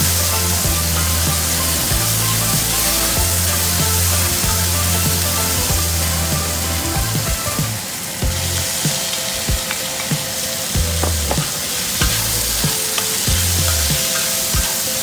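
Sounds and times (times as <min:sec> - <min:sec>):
vegetables sizzling in a pan: 0:00.0 - 0:15.0
spatula scraping a pan: 0:11.4 - 0:15.0.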